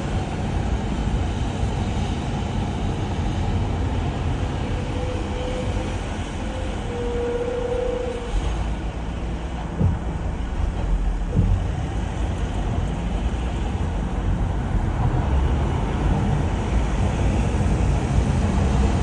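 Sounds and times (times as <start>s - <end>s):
heavy truck engine rumbling: 0.0s - 19.0s
street traffic: 0.0s - 19.0s
brief knock: 11.3s - 11.8s.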